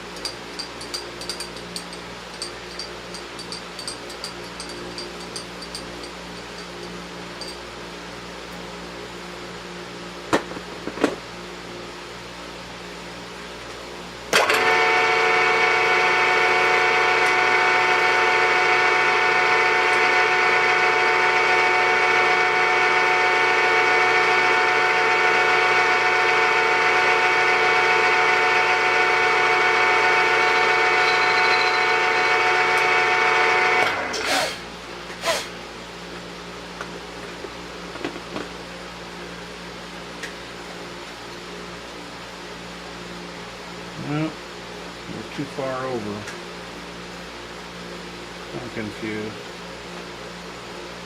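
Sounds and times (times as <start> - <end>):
lathe motor whining: 14.4 - 35.5.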